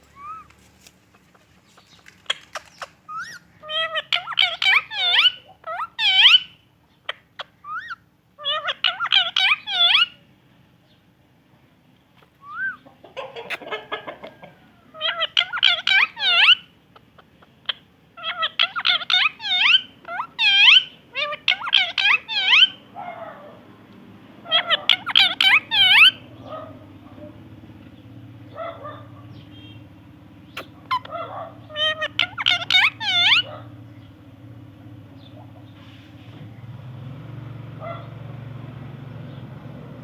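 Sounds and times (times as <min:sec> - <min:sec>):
parrot calling sharp repeated notes: 0:17.7 - 0:22.9, 0:24.4 - 0:26.2, 0:30.5 - 0:33.6.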